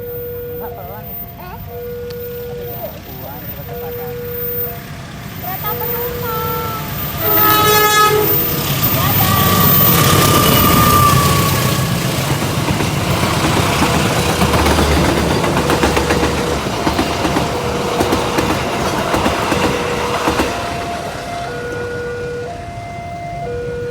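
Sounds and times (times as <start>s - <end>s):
crossing warning alarm tones: 0.0s - 23.9s
train wheels clacking: 4.8s - 22.0s
train horn: 5.5s - 12.2s, 14.0s - 23.9s.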